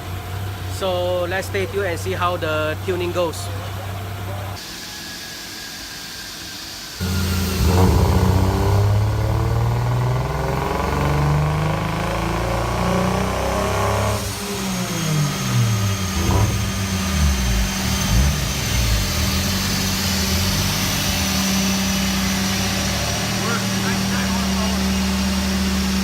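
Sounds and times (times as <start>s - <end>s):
car engine revving: 7.0s - 26.0s
steady low hum: 7.0s - 26.0s.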